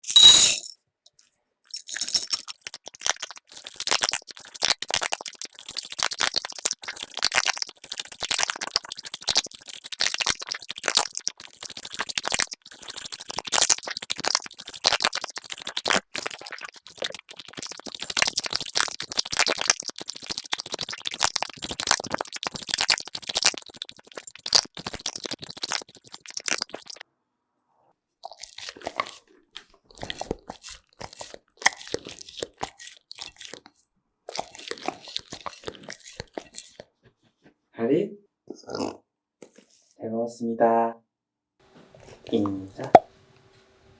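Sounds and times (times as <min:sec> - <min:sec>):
dog chewing and crunching food: 0:01.7 - 0:27.0, 0:28.2 - 0:37.4.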